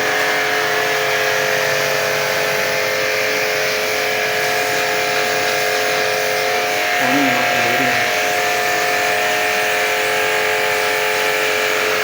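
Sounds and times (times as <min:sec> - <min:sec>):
pressure washer motor hum: 0:00.0 - 0:12.0
water spray hiss: 0:03.6 - 0:09.2.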